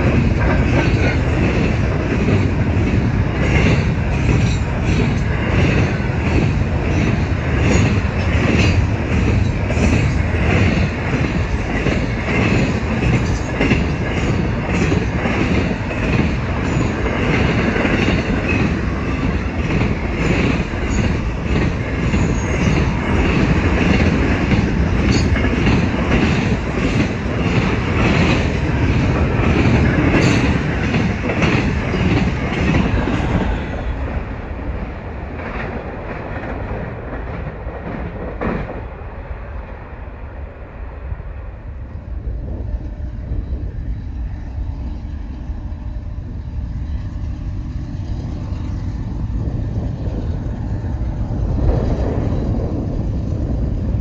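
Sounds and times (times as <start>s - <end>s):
wheels clacking over rail joints: 0.0s - 34.2s
train rumbling past: 0.0s - 54.0s.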